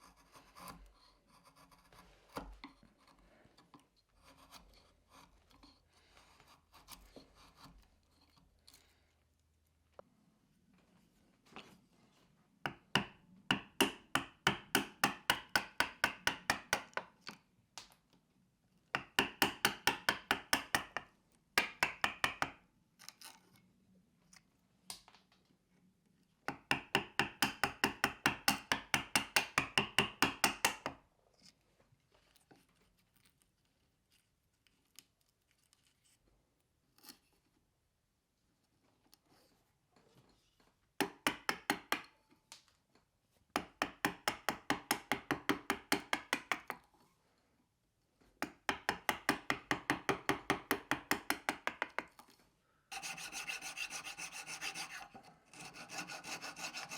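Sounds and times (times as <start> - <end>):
mallet striking chisel: 12.7 - 17.0, 19.0 - 22.6, 26.5 - 31.0, 41.0 - 42.1, 43.6 - 46.8, 48.4 - 52.1.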